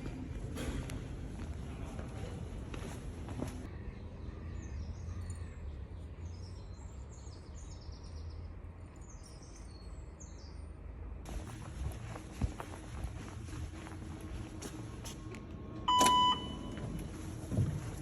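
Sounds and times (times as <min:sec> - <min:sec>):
low outdoor rumble: 0:10.8 - 0:18.0.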